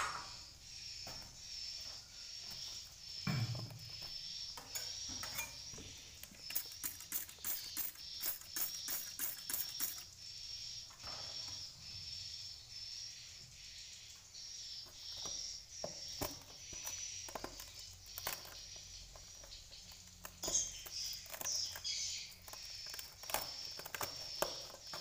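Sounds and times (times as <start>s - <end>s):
swiftlet high chirp: 3.8s - 16.2s
sharp clicks: 6.2s - 10.1s.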